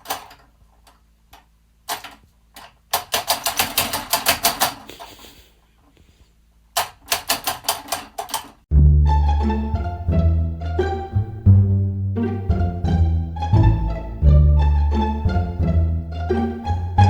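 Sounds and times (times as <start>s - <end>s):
rapid clicking: 3.0s - 4.9s.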